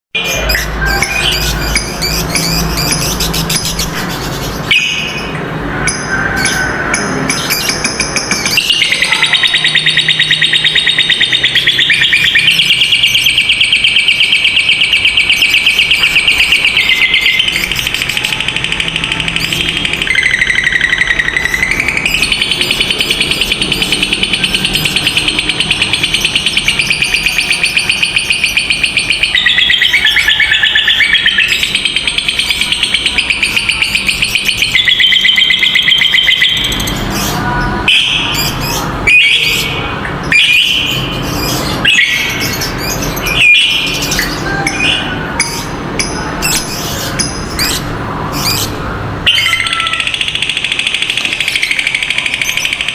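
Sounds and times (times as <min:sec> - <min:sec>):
lovebird chattering trill: 0:00.2 - 0:52.9.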